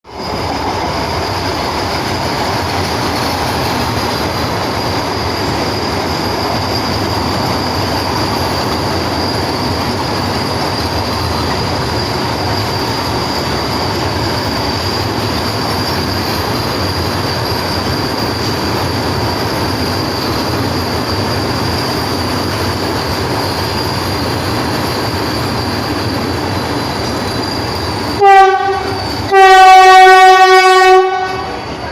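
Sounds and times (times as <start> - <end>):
train rolling rumble: 0.0 - 31.9
loud train horn: 28.2 - 31.7.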